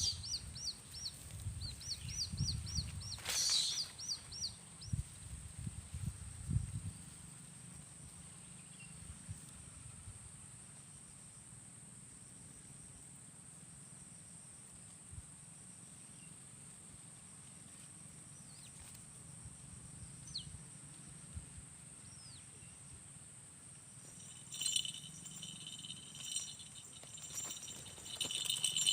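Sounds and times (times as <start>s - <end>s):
faint bird chirps: 0.0s - 5.1s.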